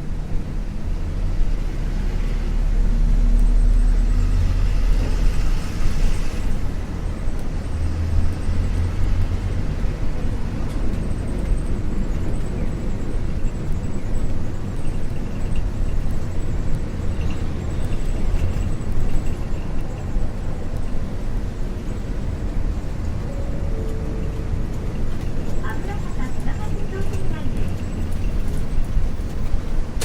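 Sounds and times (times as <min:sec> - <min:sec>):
bus diesel engine drone: 0:00.0 - 0:30.0.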